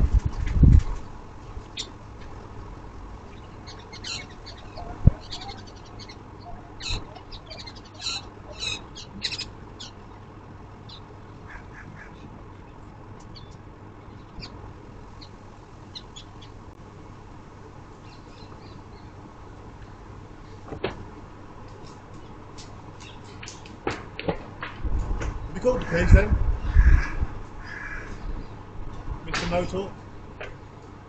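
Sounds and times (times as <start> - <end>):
steady low hum: 0.0 - 31.0
harsh bird calls: 1.7 - 16.6, 25.5 - 28.7.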